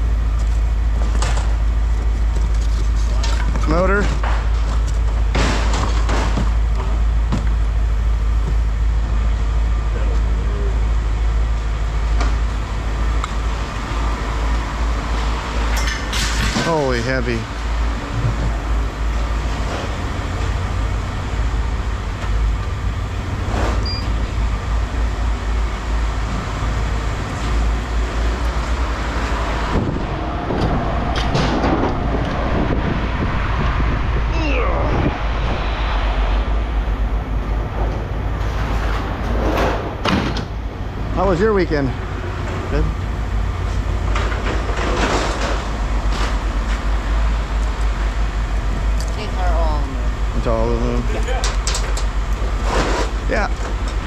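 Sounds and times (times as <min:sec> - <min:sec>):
vehicle engine idling: 0:00.0 - 0:16.1, 0:16.7 - 0:54.0
scrap metal scraping and clattering: 0:37.7 - 0:40.2, 0:43.6 - 0:46.8, 0:51.4 - 0:54.0.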